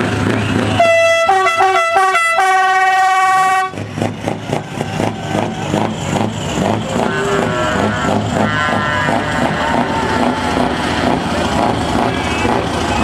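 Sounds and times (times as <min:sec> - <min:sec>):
diesel truck engine pulsing: 0:00.0 - 0:13.0
musical air horn: 0:00.8 - 0:03.8.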